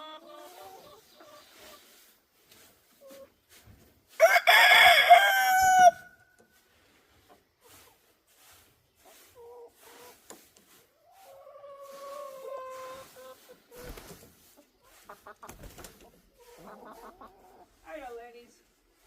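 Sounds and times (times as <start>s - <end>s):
hens clucking: 0.0s - 3.5s, 8.8s - 17.9s
rooster crowing: 4.2s - 6.2s.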